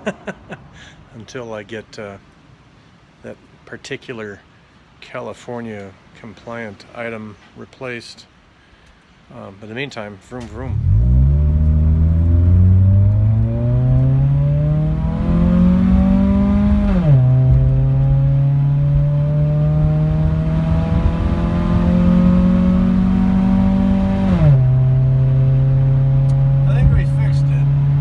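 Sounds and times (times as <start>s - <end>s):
car engine accelerating: 10.5s - 28.0s.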